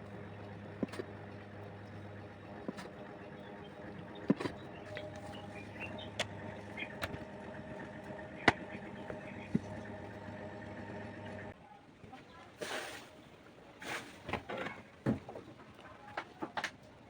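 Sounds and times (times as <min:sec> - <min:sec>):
engine hum: 0:00.0 - 0:11.6
sharp knocks and clicks: 0:00.8 - 0:01.2, 0:03.7 - 0:10.0.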